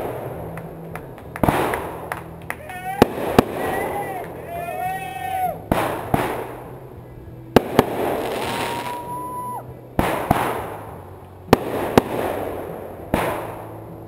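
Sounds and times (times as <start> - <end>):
firework shells bursting: 0.0 - 4.4, 5.6 - 6.9, 7.5 - 9.4, 10.0 - 13.9
firework crackle: 0.0 - 14.0
firework whistle: 2.6 - 6.4, 7.8 - 10.6.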